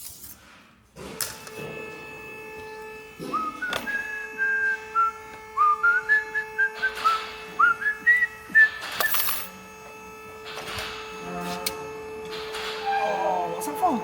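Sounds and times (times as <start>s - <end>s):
person whistling a tune: 3.3s - 9.3s.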